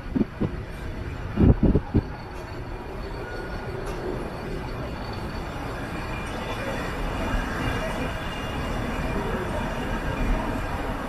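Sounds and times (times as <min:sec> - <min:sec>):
train wheels rumbling on rails: 0:00.0 - 0:11.0
faint high whine: 0:00.1 - 0:11.0.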